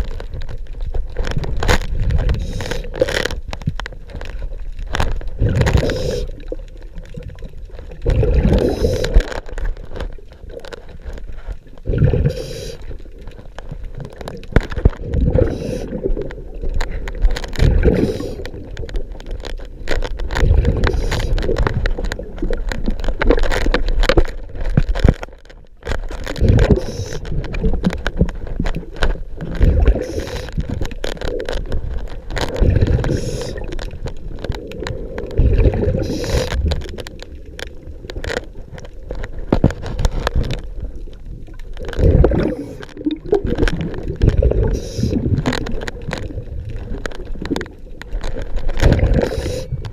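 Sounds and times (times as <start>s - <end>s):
bubbles gurgling: 0.0s - 25.1s, 26.1s - 49.9s
diver breathing through regulator: 2.3s - 2.9s, 5.7s - 6.4s, 8.4s - 9.3s, 12.0s - 12.9s, 15.4s - 16.1s, 17.7s - 18.4s, 20.8s - 21.4s, 29.8s - 30.6s, 32.9s - 33.7s, 35.8s - 36.6s, 49.0s - 49.8s.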